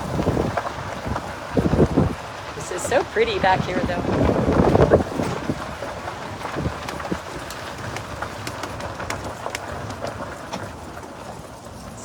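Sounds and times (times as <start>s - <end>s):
small vehicle rolling on rough track: 0.0s - 12.0s
twigs clicking and snapping: 6.4s - 10.2s.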